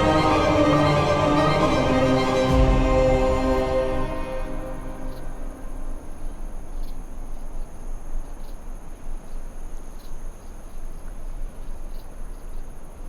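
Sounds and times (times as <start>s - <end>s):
low rushing noise: 0.0s - 6.8s.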